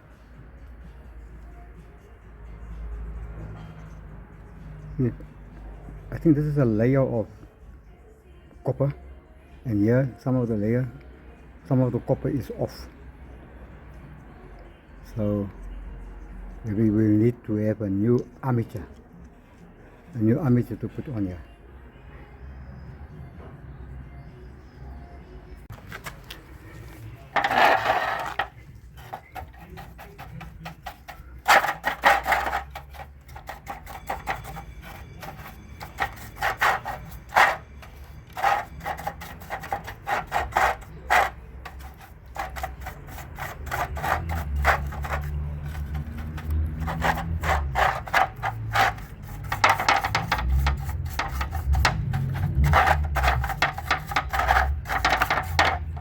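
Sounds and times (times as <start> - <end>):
rubbing and scraping of parts: 25.7 - 56.0.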